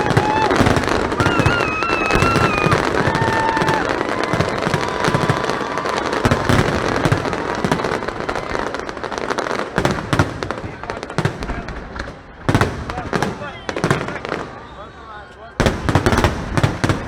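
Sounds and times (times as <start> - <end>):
firework whistle: 0.0 - 9.3
fireworks bangs and crackles: 0.0 - 17.0.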